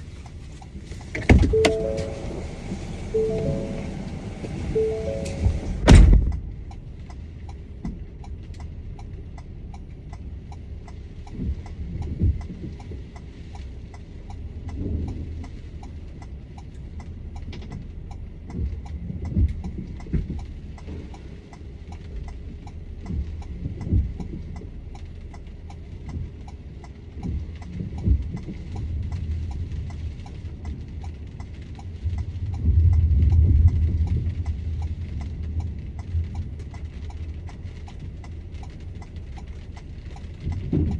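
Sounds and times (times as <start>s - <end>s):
low rumble: 1.4s - 7.4s, 27.3s - 40.9s.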